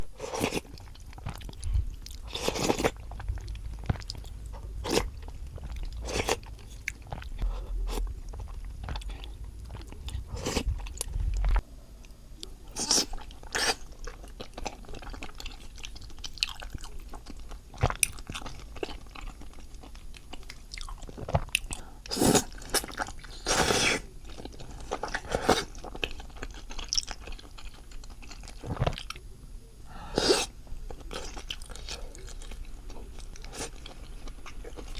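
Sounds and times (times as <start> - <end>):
person chewing food: 0.0 - 11.6, 12.4 - 29.2, 30.1 - 34.9
low hum: 0.7 - 12.7.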